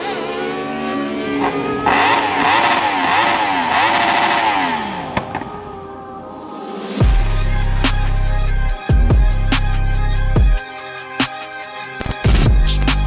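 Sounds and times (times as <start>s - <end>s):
motorcycle engine revving: 0.0s - 5.9s
sharp exhaust cracks: 1.3s - 5.9s.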